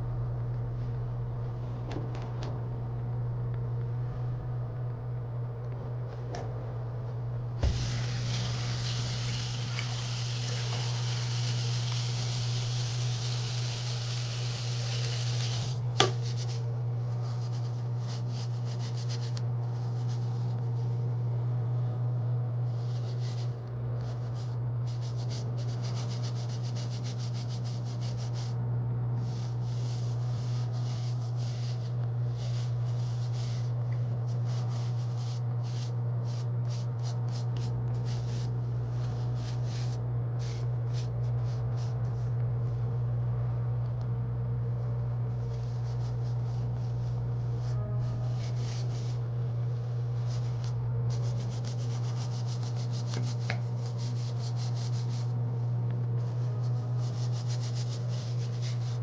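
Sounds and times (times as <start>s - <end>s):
machine humming: 0.0s - 17.2s
rubbing and scraping noises: 7.6s - 21.0s, 22.7s - 28.6s, 29.2s - 42.4s, 45.3s - 59.0s.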